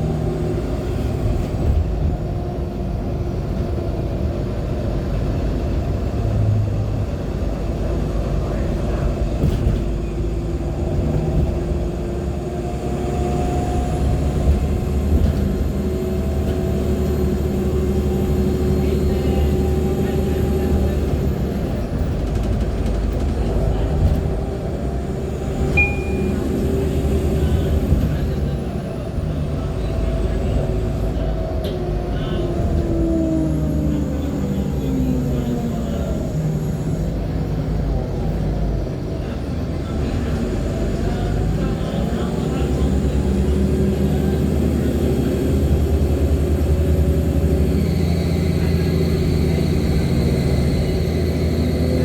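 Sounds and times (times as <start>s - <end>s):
bus engine rumble: 0.0s - 52.0s
brief high squeak: 25.8s - 26.5s
high whistle: 25.8s - 26.5s.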